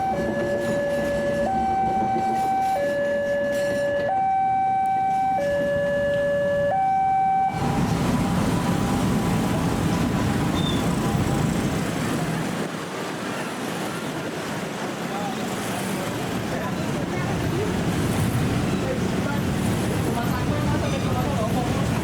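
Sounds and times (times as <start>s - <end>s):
two-tone electronic warning alarm: 0.0s - 9.4s
loud steady rushing rumble: 7.5s - 22.0s.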